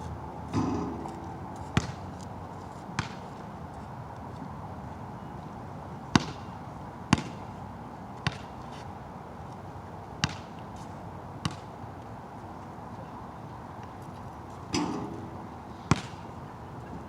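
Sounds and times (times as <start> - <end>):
basketball bouncing on wet court: 0.6 - 2.0, 3.0 - 3.2, 6.2 - 6.4, 7.1 - 7.4, 10.2 - 10.5, 11.4 - 11.7, 15.9 - 16.2.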